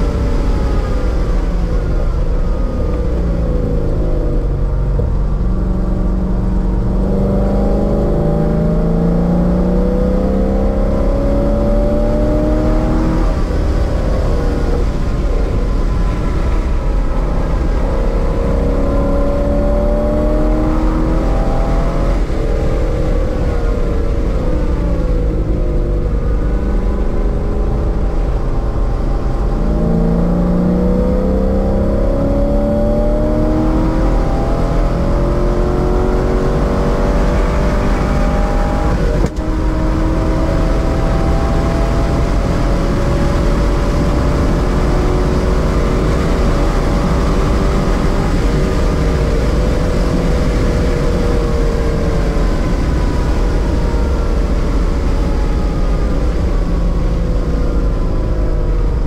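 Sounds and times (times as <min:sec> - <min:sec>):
car engine accelerating: 0:00.0 - 0:59.0
wind noise: 0:00.0 - 0:59.0.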